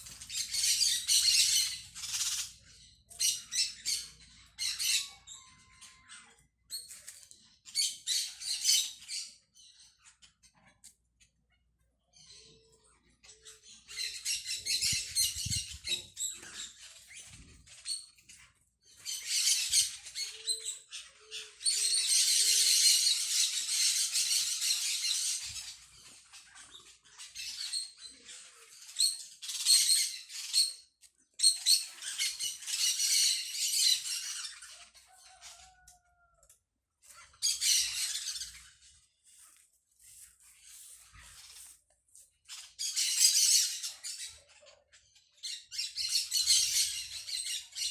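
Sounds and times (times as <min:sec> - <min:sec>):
small birds chattering: 0:00.0 - 0:47.9.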